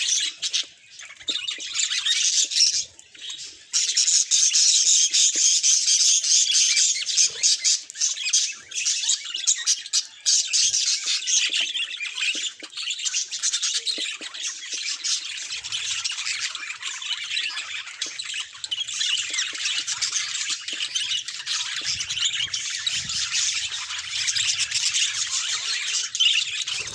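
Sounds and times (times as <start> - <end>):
budgerigars chattering: 0.0 - 26.9.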